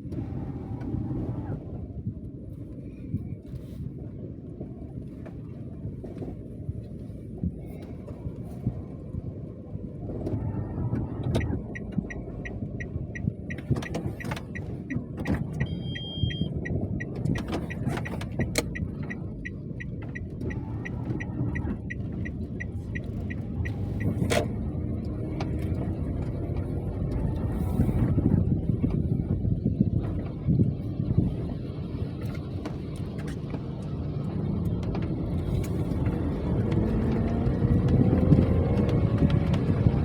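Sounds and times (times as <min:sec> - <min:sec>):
car rumbling on the move: 0:00.0 - 0:40.0
regular ticking: 0:11.4 - 0:24.5.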